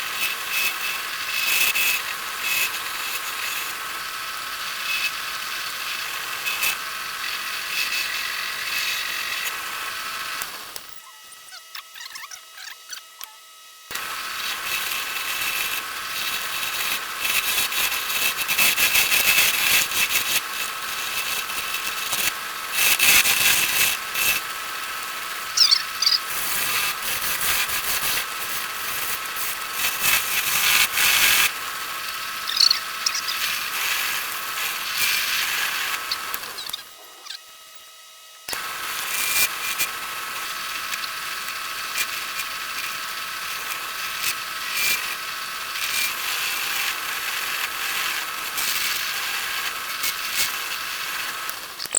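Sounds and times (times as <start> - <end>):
lathe motor whine: 0.0 - 11.5, 13.5 - 51.9
tool scraping spinning wood: 13.9 - 37.4.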